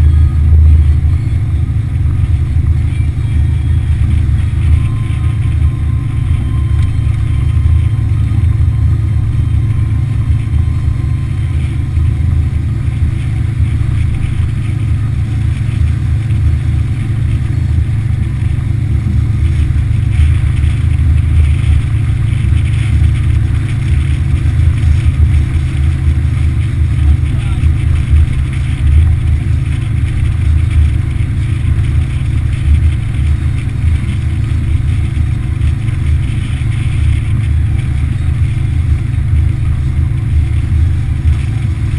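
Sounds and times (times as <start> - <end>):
outboard motor droning: 0.0 - 41.9.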